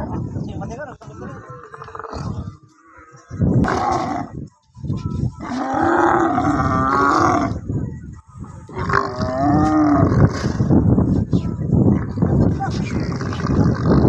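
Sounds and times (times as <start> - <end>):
camel crying out: 5.4 - 7.6.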